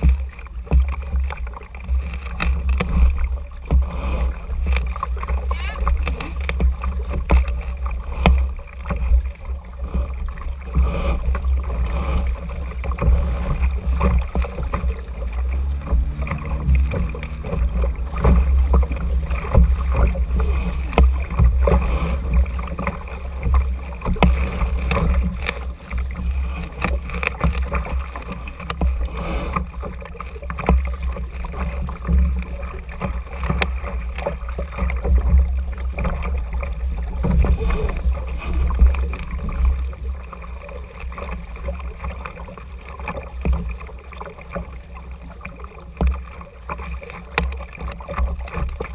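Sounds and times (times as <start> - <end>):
water slapping along a hull: 0.0 - 48.9
low hum: 7.7 - 27.2.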